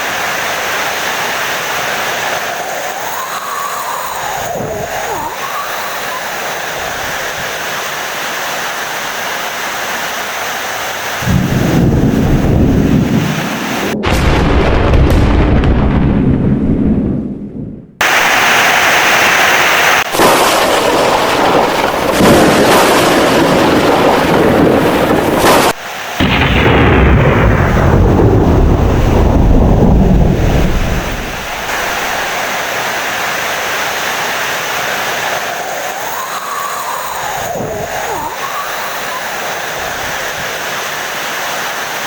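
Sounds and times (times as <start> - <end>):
heavy rain: 0.0 - 15.7, 18.0 - 42.0
low thunder rumble: 11.2 - 18.0, 20.2 - 25.4, 26.2 - 32.4.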